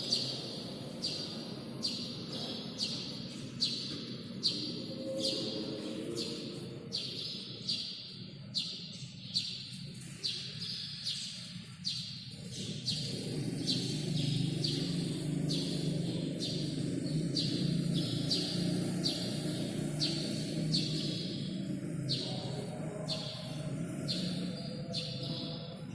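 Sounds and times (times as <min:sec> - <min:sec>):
sparrow chirping: 0:00.0 - 0:25.9
steady low hum: 0:12.3 - 0:25.9.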